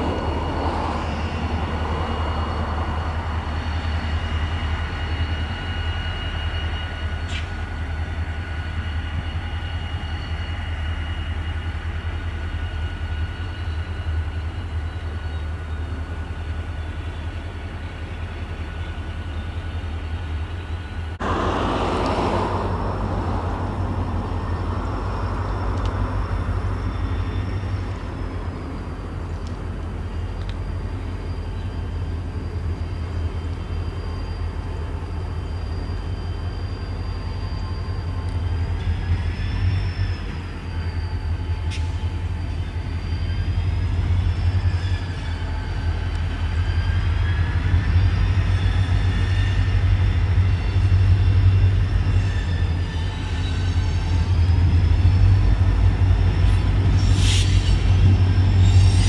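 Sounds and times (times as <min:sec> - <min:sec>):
locomotive low rumble: 0:00.0 - 0:59.0
high-pitched squeals: 0:18.7 - 0:59.0.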